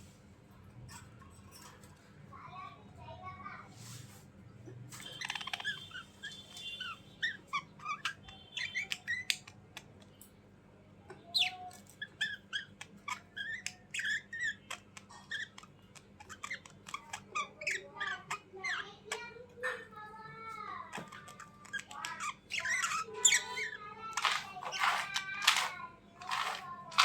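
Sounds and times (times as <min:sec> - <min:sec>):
bird chirping and squawking: 0:05.0 - 0:09.6, 0:11.3 - 0:19.8, 0:20.9 - 0:27.0.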